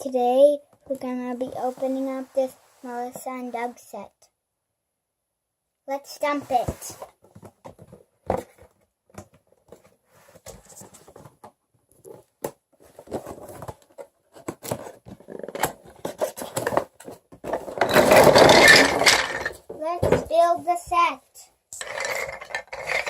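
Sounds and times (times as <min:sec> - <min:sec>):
wooden toy pieces clattering: 0:17.6 - 0:20.2, 0:21.8 - 0:23.0.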